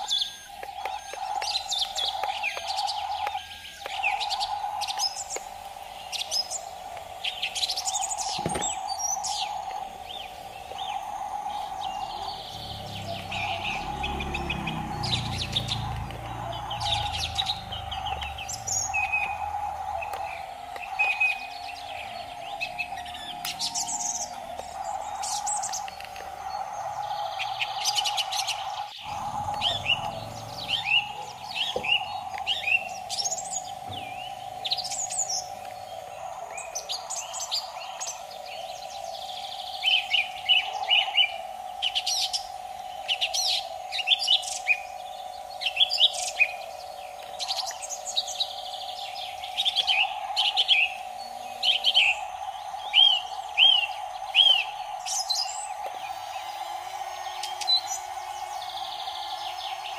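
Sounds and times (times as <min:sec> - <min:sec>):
birds chirping: 0:00.0 - 0:59.9
steady hum: 0:00.0 - 0:59.9.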